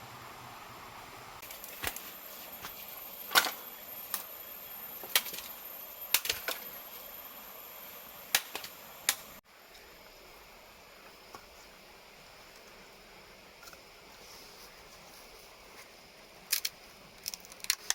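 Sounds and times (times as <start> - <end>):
steady hiss: 0.0 - 17.9.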